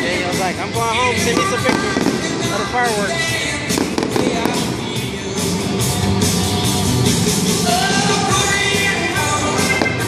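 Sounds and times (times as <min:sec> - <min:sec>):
voice over a loudspeaker: 0:00.0 - 0:05.2
fireworks bursting and crackling: 0:00.0 - 0:10.0
loud music: 0:00.0 - 0:10.0.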